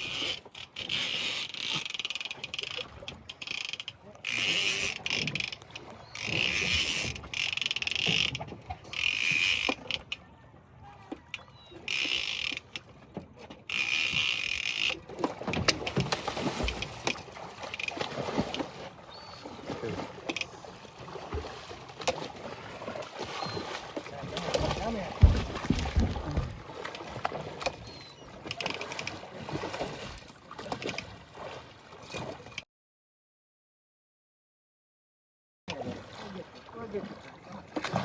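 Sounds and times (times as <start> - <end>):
water around boat: 0.0 - 32.7, 35.7 - 38.0
fishing reel clicking: 0.1 - 5.6, 6.2 - 8.3, 8.9 - 10.2, 11.9 - 12.7, 13.7 - 15.0
soft knocks: 24.7 - 26.6.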